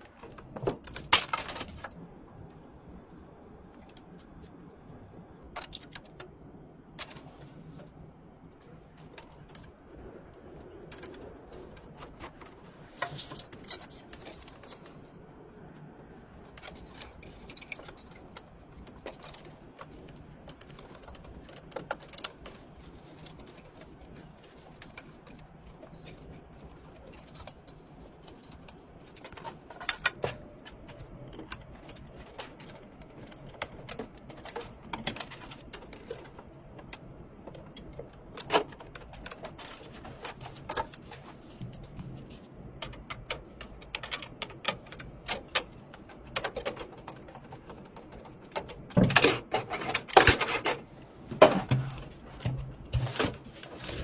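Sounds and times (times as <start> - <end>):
computer parts clicking and tapping: 0.0 - 2.0, 5.4 - 15.0, 15.6 - 54.0
low steady hum: 0.0 - 54.0.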